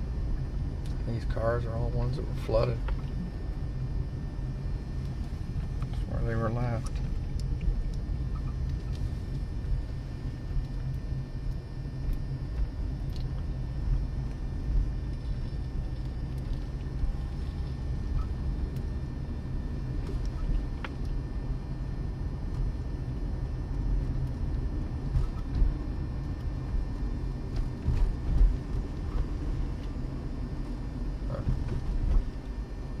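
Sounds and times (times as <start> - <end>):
car driving rumble: 0.0 - 33.0.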